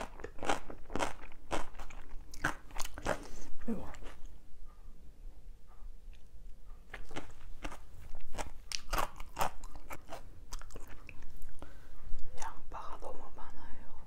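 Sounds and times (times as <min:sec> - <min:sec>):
person chewing crunchy food: 0:00.0 - 0:04.3, 0:06.9 - 0:11.7.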